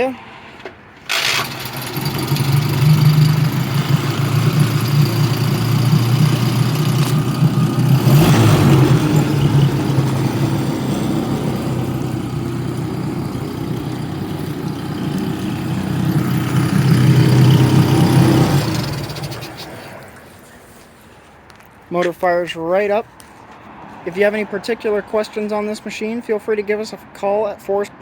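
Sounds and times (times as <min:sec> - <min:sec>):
outboard motor idling: 0:01.1 - 0:20.5.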